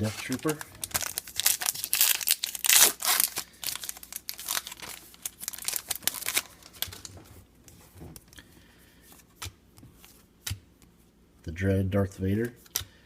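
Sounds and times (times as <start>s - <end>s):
wrapper crinkling: 0.0s - 7.3s
cards tapping and sliding: 9.1s - 10.9s.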